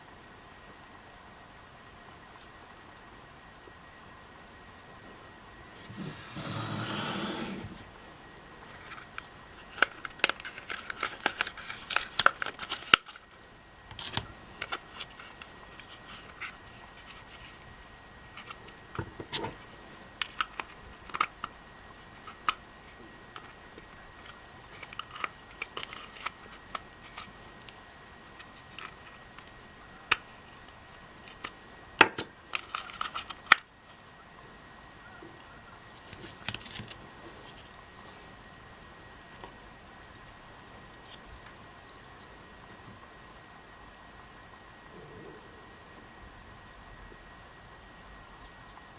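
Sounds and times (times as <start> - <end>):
vacuum parts clicking and scraping: 8.7 - 13.3, 24.2 - 27.8, 32.5 - 33.6.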